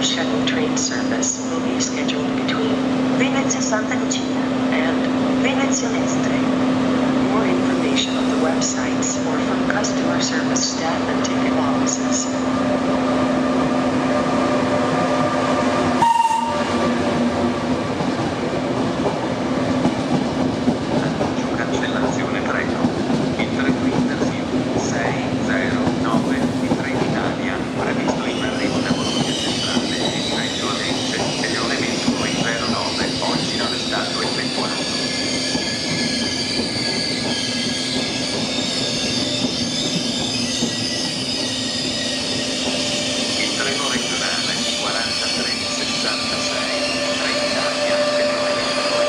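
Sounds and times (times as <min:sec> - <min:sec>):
rumbling train wheels: 0:00.0 - 0:49.0
train hum with held tones: 0:00.0 - 0:49.0
short high tone: 0:16.0 - 0:16.7.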